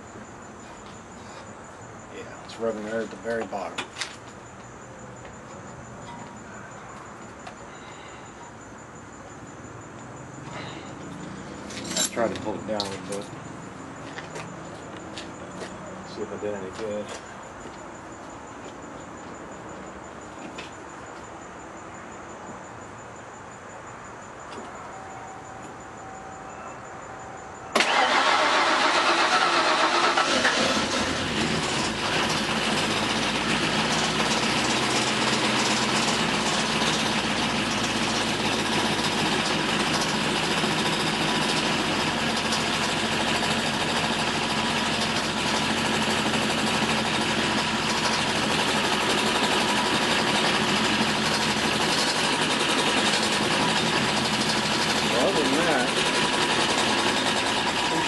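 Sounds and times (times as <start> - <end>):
car engine starting and idling: 27.7 - 58.0.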